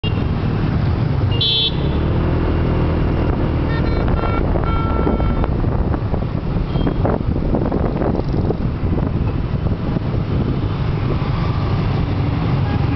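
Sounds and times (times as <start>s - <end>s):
motorbike traffic: 0.0s - 12.9s
horn sounding: 3.6s - 5.5s.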